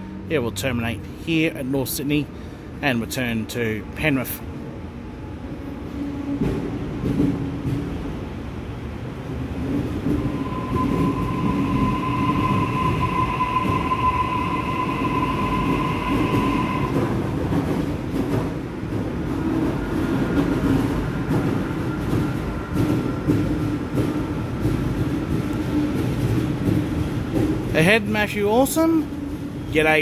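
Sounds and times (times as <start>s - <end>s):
electric train rumbling: 0.0s - 30.0s
high-pitched whine: 10.1s - 17.2s.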